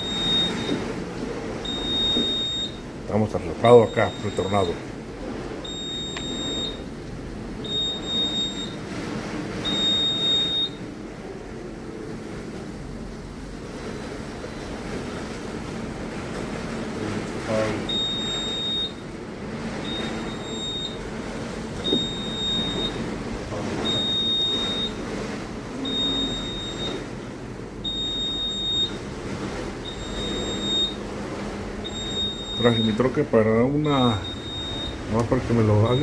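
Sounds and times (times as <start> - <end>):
electronic alarm beeping: 0.0 - 0.8, 1.6 - 2.8, 3.6 - 4.8, 5.6 - 6.9, 7.6 - 8.8, 9.6 - 10.8, 17.8 - 19.0, 19.8 - 21.0, 21.8 - 23.1, 23.7 - 25.0, 25.8 - 27.0, 27.8 - 29.0, 29.8 - 31.0, 31.8 - 33.2, 33.8 - 36.0.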